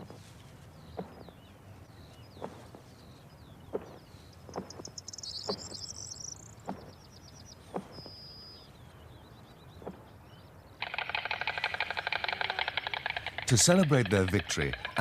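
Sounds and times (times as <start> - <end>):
small birds chirping: 0.0 - 15.0
storks clattering bills: 10.8 - 15.0.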